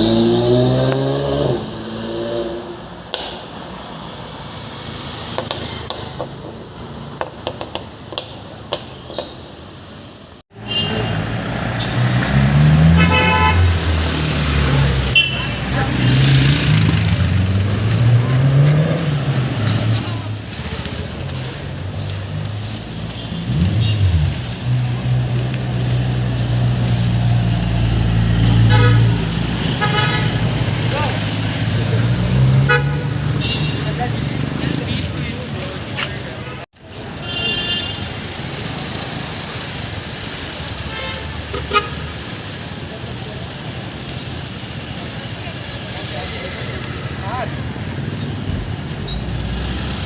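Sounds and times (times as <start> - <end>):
vehicle engine revving: 0.0 - 2.8, 10.9 - 35.3, 45.7 - 50.0
city road traffic: 0.0 - 50.0
car horn: 10.6 - 12.0, 12.8 - 13.8, 15.0 - 15.8, 28.5 - 30.5, 32.6 - 34.0, 37.2 - 38.1, 40.8 - 42.1.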